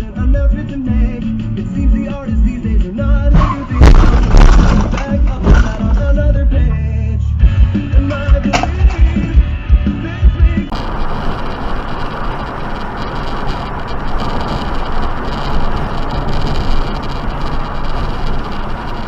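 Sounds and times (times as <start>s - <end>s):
car road and wind noise: 3.3s - 6.2s, 10.4s - 19.0s.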